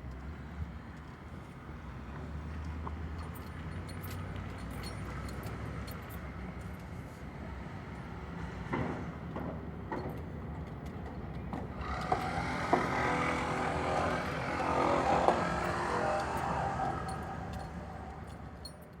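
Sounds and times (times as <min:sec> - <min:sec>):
motor vehicle traffic: 0:10.4 - 0:19.0.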